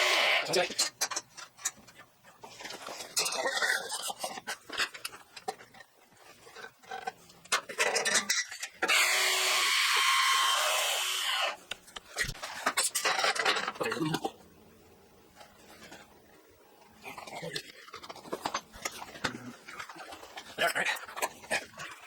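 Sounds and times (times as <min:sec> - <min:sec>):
power tool running: 0:00.0 - 0:00.4, 0:08.8 - 0:11.6.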